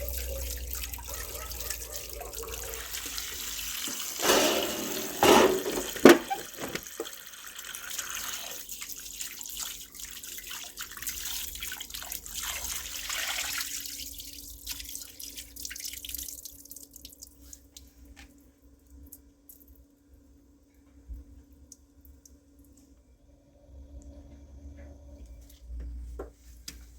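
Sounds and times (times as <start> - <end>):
water dripping: 0.0 - 4.2, 6.2 - 19.8.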